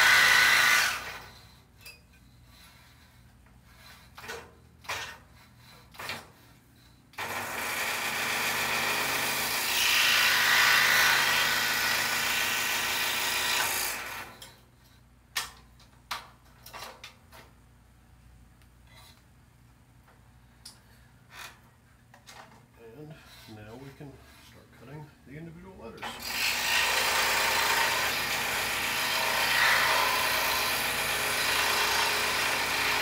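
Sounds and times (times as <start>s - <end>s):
scroll saw cutting wood: 0.0s - 1.4s, 7.2s - 14.4s, 26.0s - 33.0s.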